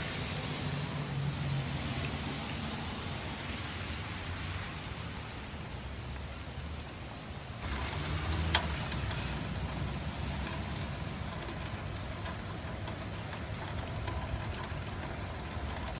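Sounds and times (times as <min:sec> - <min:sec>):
rain hissing: 0:00.0 - 0:16.0
raindrops ticking: 0:00.1 - 0:16.0.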